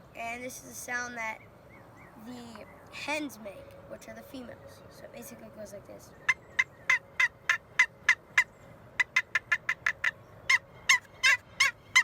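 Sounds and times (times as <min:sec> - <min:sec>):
turkey call yelps: 0:06.2 - 0:12.0.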